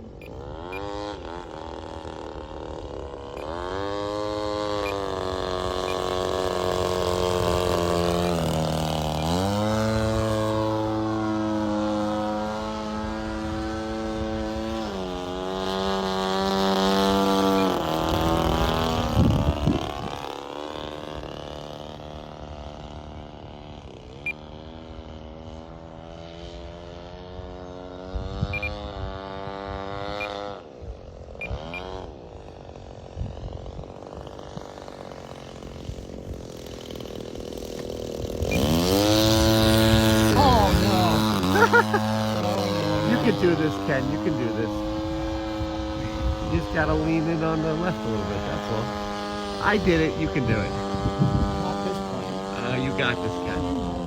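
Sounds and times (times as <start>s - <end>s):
model airplane motor droning: 0.0s - 54.0s.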